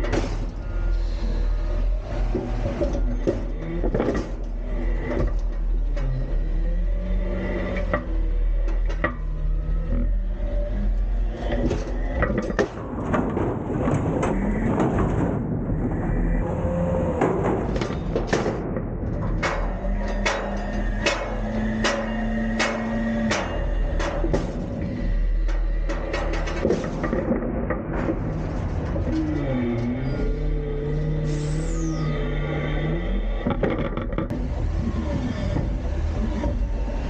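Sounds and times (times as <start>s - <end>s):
metal clanks and knocks: 0.0s - 1.0s, 1.9s - 6.4s, 7.4s - 10.2s, 11.3s - 15.4s, 17.2s - 30.4s, 33.4s - 34.4s
garbage truck engine running: 0.0s - 37.0s.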